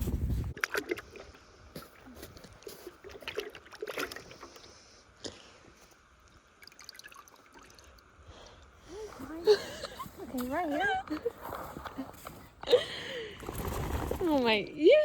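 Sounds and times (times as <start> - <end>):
horse drinking water: 0.5 - 5.1.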